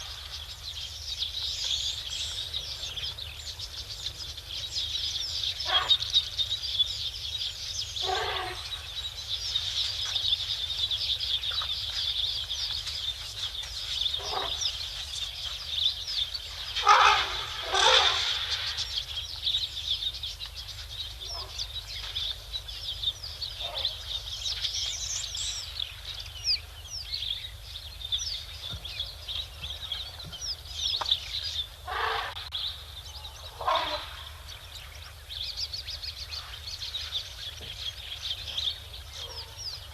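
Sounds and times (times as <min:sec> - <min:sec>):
small birds chirping: 0:00.0 - 0:39.9
loud short bird calls: 0:08.0 - 0:08.8, 0:16.6 - 0:19.2, 0:31.8 - 0:34.6.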